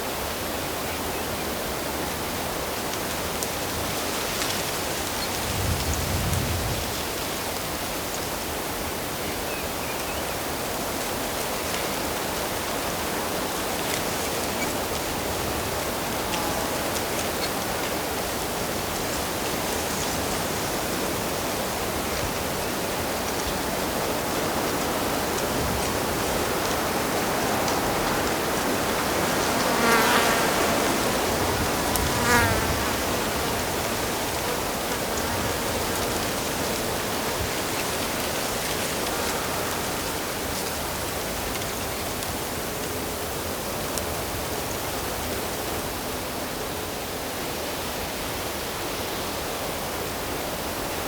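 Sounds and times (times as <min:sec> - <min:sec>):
fly buzzing: 0:27.4 - 0:36.8.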